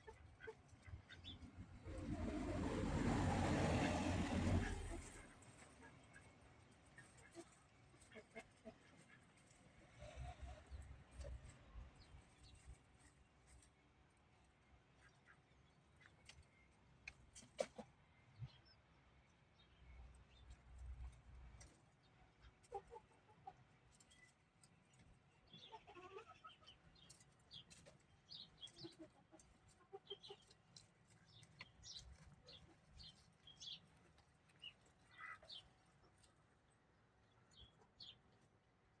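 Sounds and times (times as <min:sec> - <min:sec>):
low clucking bird calls: 0:22.4 - 0:33.8.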